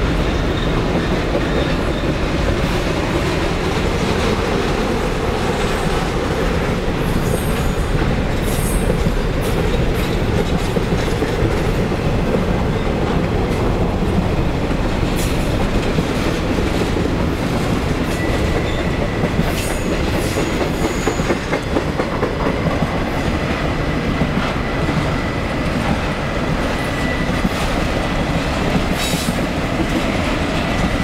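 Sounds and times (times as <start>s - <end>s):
train wheels rumbling over rails: 0.0s - 31.0s
high wheel squeal: 18.1s - 21.5s, 26.8s - 27.7s.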